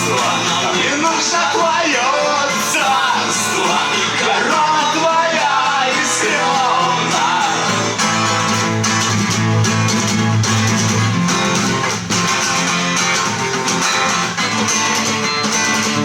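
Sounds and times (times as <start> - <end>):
person singing: 0.0 - 8.6
guitar strumming: 0.0 - 16.0.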